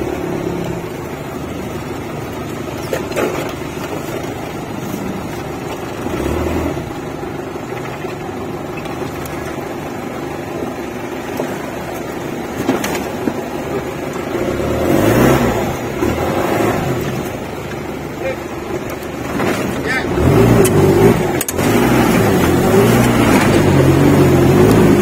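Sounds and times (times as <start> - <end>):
off-road vehicle engine running: 0.0 - 25.0.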